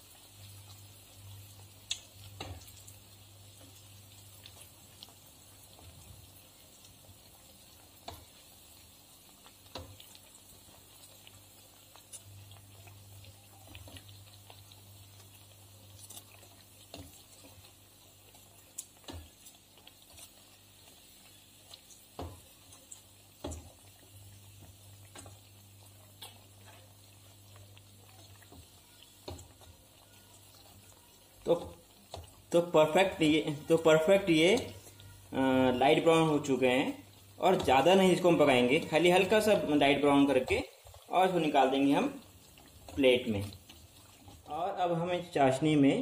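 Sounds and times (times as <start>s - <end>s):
bread sizzling in oil: 0.0s - 46.0s
utensils tapping and scraping pan: 18.3s - 25.5s.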